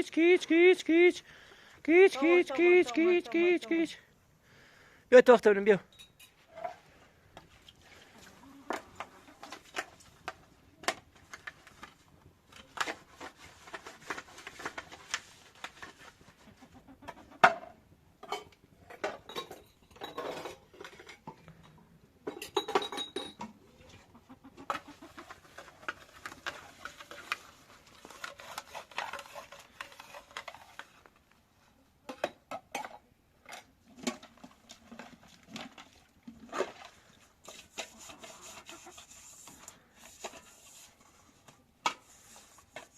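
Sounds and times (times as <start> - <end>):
clatter of pots and dishes: 17.1 - 24.0, 32.1 - 38.7.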